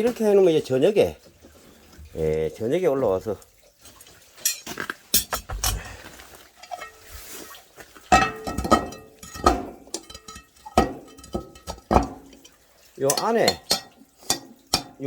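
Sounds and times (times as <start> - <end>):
metal parts clanking: 4.4 - 6.0.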